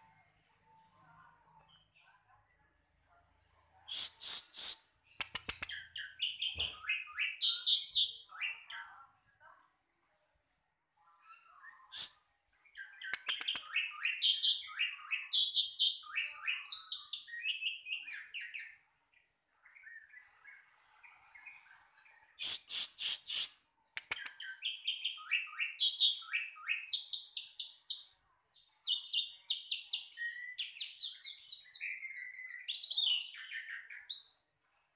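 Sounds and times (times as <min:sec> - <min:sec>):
bird chirping and twittering: 0:02.8 - 0:08.9, 0:11.2 - 0:34.9
loud scratchy sounds: 0:03.9 - 0:05.7, 0:22.4 - 0:24.2.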